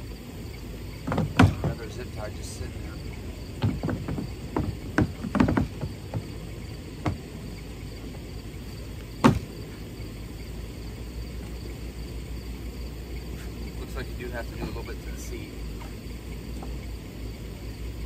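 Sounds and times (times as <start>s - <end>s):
knocks on plastic kayak: 1.0s - 1.8s, 3.6s - 6.3s, 9.2s - 9.5s.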